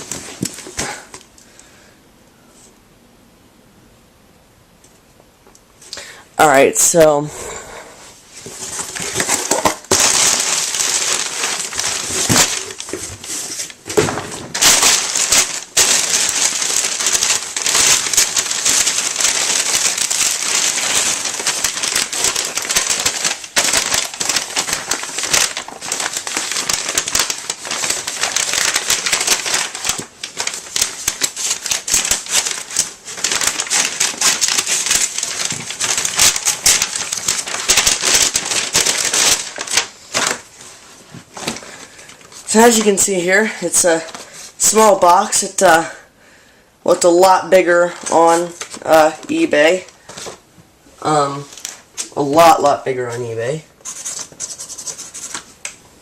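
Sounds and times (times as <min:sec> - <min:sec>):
packaging being torn and crumpled: 0:08.5 - 0:40.6, 0:41.3 - 0:45.4, 0:53.9 - 0:55.8.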